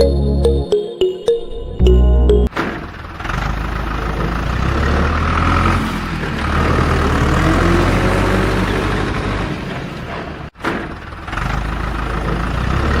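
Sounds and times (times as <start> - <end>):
background music: 0.0 - 2.6.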